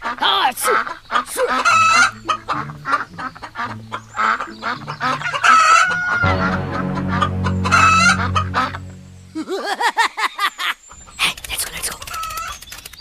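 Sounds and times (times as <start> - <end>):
chickens clucking: 0.0 - 8.9
low steady hum: 1.6 - 9.6.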